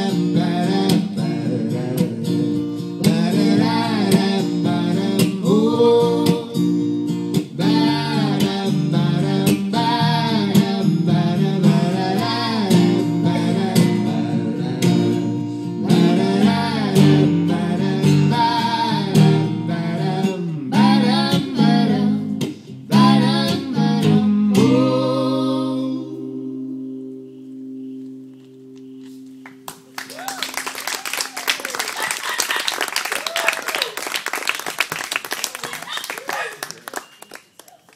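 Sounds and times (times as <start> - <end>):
people singing: 0.0 - 6.8, 7.4 - 26.7
acoustic guitar strumming: 0.0 - 30.0.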